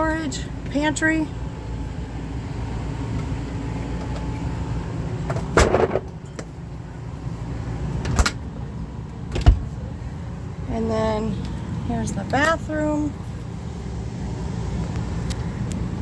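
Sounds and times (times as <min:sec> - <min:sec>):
low steady rumble: 0:00.0 - 0:16.0
cabinet doors rattling: 0:09.3 - 0:09.7.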